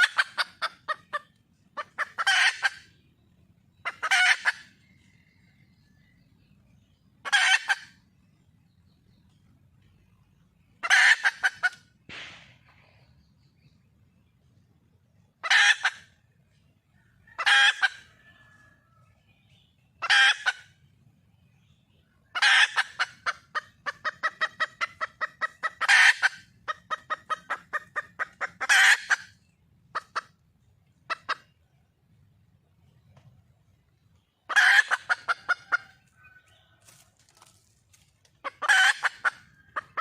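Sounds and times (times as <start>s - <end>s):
hen calling: 0.0s - 3.1s, 3.8s - 4.8s, 7.2s - 8.1s, 10.8s - 12.3s, 20.0s - 20.8s, 22.3s - 31.6s, 34.4s - 36.5s, 38.4s - 40.0s
hen clucking: 0.0s - 9.4s, 10.0s - 12.3s, 15.1s - 40.0s.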